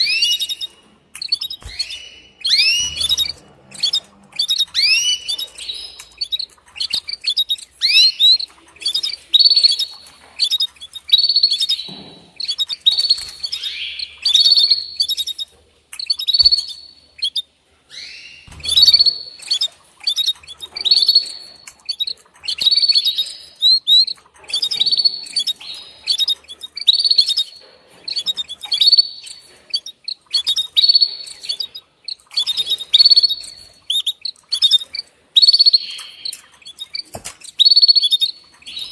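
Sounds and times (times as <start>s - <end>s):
canary chirping: 0.0s - 38.9s.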